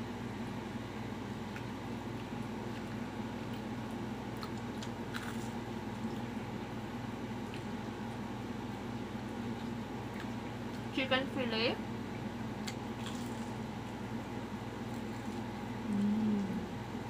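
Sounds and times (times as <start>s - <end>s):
person chewing and biting: 1.5s - 6.3s, 12.6s - 13.8s, 14.8s - 16.6s
food crunching: 1.5s - 6.4s, 9.2s - 10.9s, 12.1s - 14.0s, 14.8s - 16.6s
low hum: 11.8s - 17.0s.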